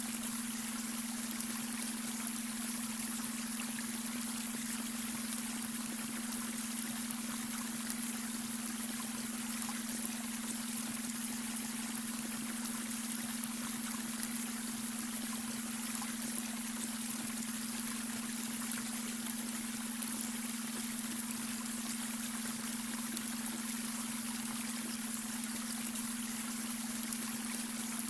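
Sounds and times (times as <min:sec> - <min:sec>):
water trickling over stones: 0:00.0 - 0:28.0.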